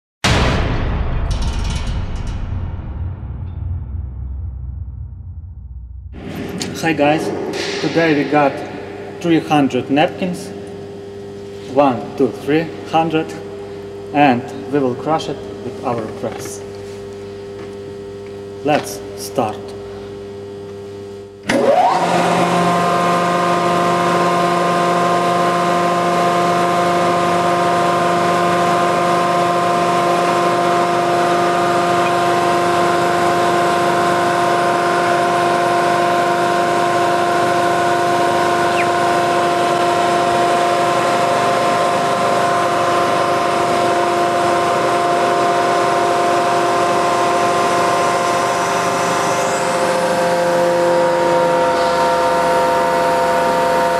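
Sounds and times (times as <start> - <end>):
hydraulic pump motor humming: 15.3 - 53.9.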